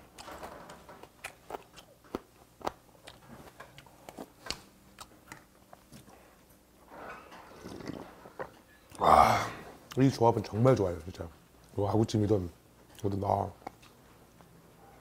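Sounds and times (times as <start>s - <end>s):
person chewing food: 0.9s - 6.5s, 7.4s - 10.0s.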